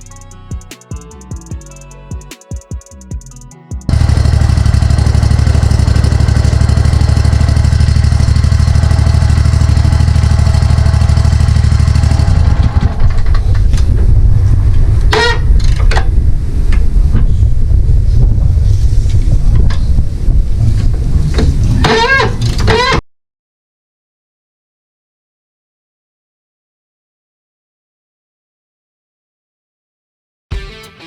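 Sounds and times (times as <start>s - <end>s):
buggy engine running: 3.9s - 16.4s.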